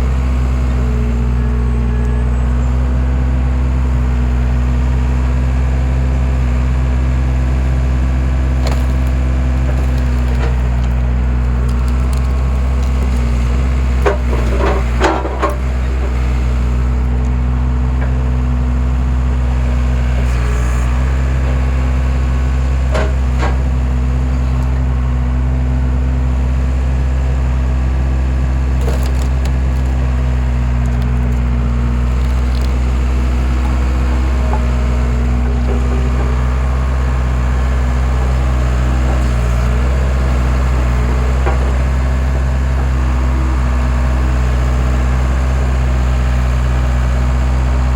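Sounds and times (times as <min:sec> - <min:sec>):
skid steer engine running: 0:00.0 - 0:47.9
wood cracking and splintering: 0:05.9 - 0:18.2, 0:26.7 - 0:45.0.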